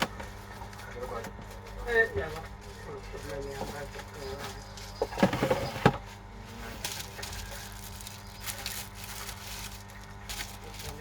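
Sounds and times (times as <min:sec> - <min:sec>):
rustling: 0:06.5 - 0:11.0.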